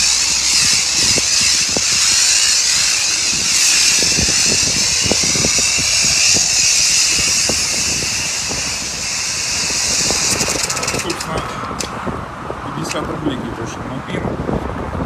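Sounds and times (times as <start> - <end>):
pressure washer spraying: 0.0 - 11.0.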